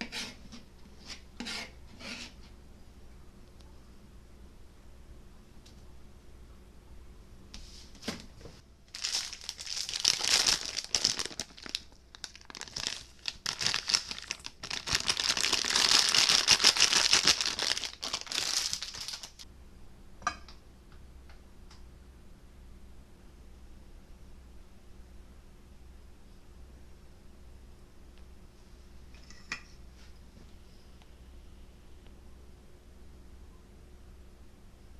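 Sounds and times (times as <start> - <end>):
crinkly material being crumpled: 8.9 - 19.4.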